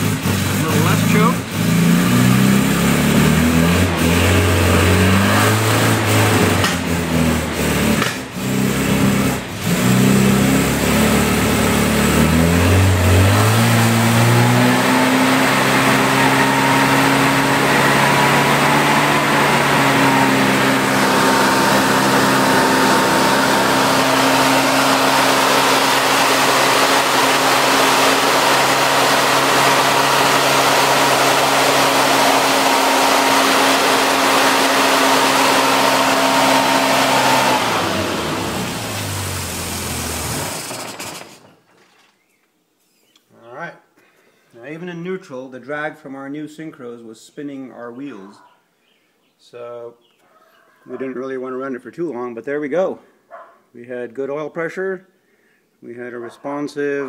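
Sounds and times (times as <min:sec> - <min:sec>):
car engine running unevenly: 0:00.0 - 0:09.8, 0:10.4 - 0:41.3.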